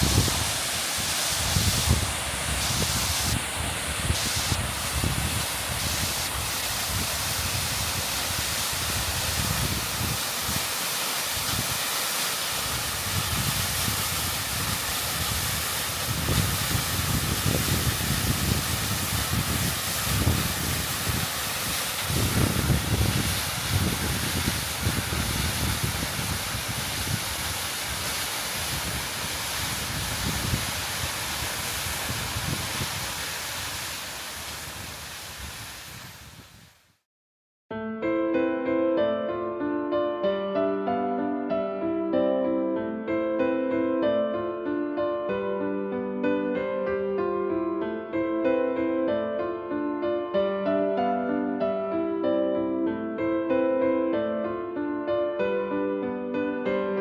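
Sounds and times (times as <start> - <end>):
wind buffeting microphone: 0.0 - 10.8, 11.4 - 11.9, 12.6 - 36.7
waterfall roaring: 0.0 - 36.0.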